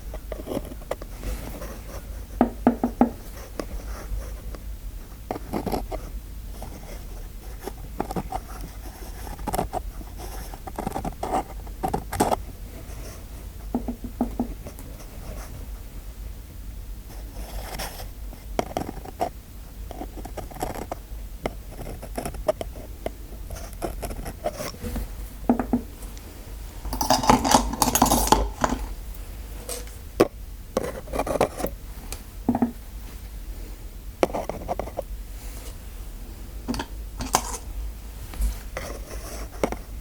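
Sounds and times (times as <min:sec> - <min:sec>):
dental tools clicking and scraping: 0:26.8 - 0:29.0, 0:29.6 - 0:31.8, 0:36.7 - 0:37.7.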